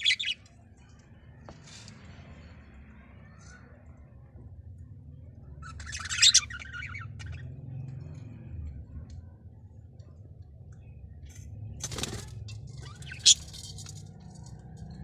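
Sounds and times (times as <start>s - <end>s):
small birds chirping: 0.0s - 0.5s, 5.2s - 8.3s, 10.0s - 14.3s.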